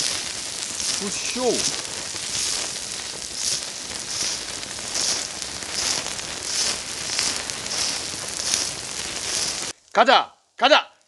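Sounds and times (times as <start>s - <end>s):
meat sizzling on hot gravel: 0.0s - 10.1s.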